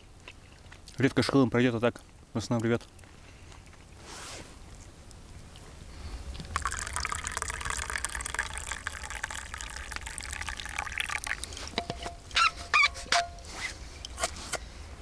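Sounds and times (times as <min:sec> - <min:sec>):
tea pouring into a cup: 0:06.4 - 0:14.2.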